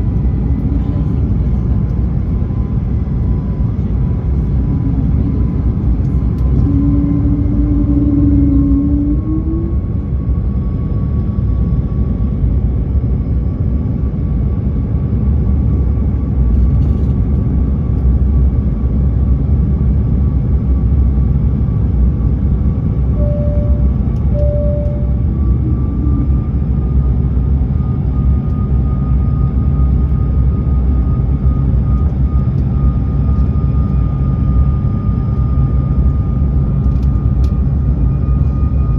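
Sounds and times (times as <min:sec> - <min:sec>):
airplane cabin rumble: 0:00.0 - 0:38.9
faint engine whine: 0:00.0 - 0:38.9
short tones: 0:23.2 - 0:25.8.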